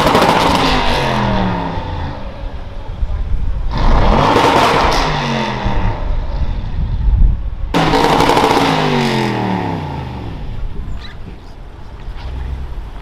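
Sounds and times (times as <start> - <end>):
car exhaust revving: 0.0 - 2.6, 3.5 - 10.8.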